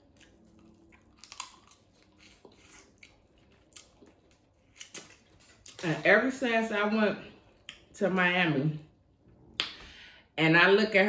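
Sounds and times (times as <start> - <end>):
person chewing: 0.0 - 6.0.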